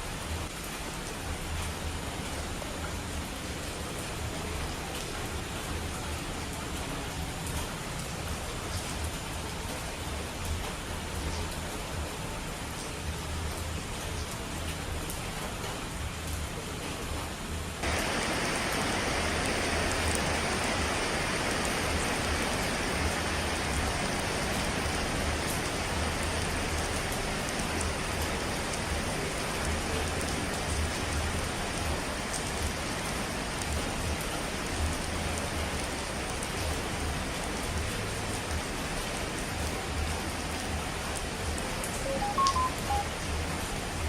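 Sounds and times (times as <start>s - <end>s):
falling water hiss: 17.8s - 29.2s.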